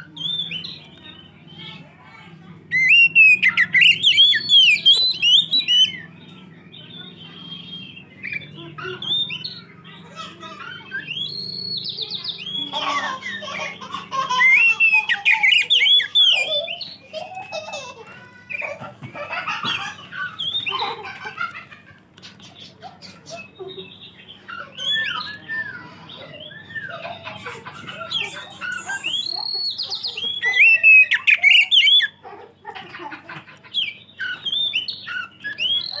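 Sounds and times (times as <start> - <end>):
bird singing whistled song: 0.0 - 1.6, 2.7 - 9.8, 10.7 - 12.7, 14.5 - 17.0, 23.3 - 27.2, 28.0 - 32.2, 33.7 - 36.0.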